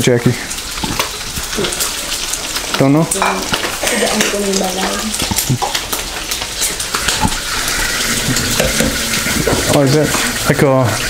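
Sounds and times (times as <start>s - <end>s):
voice: 0.0s - 0.4s, 2.8s - 5.6s, 9.6s - 11.0s
pork sizzling in oil: 0.0s - 11.0s
stirring clicks and scrapes: 0.6s - 10.5s.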